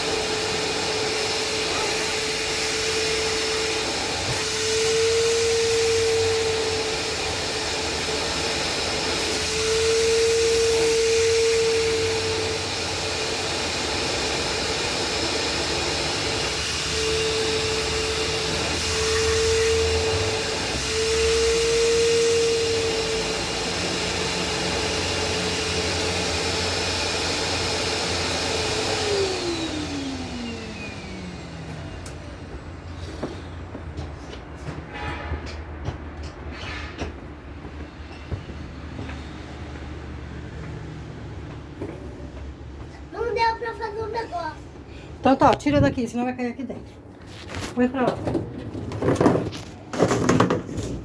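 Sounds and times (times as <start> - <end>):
electric motor whining: 0.0 - 32.4.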